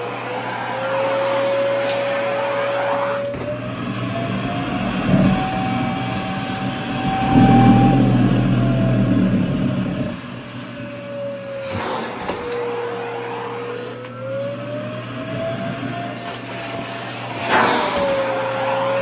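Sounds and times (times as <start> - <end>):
vacuum cleaner motor whine: 0.0 - 19.0
low rumble: 3.3 - 11.2.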